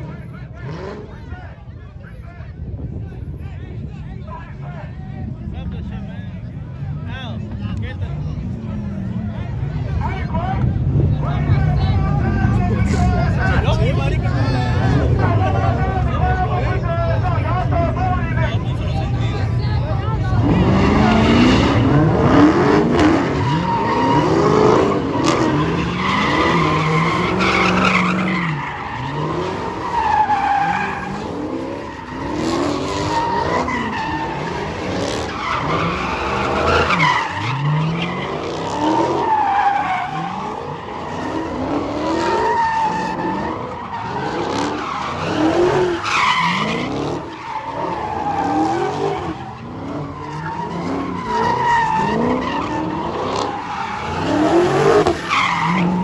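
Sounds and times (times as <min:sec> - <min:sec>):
car engine revving: 0:00.0 - 0:01.4, 0:05.2 - 0:56.0
tires squealing: 0:00.0 - 0:01.7, 0:05.5 - 0:56.0.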